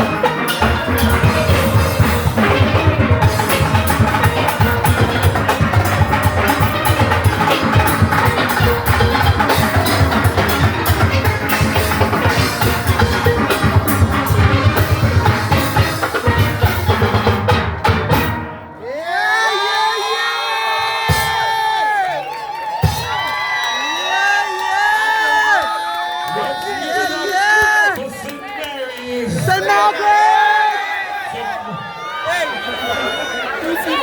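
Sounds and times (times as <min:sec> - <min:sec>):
steelpans playing: 0:00.0 - 0:18.5
drum kit and percussion: 0:00.0 - 0:19.0, 0:20.7 - 0:25.6.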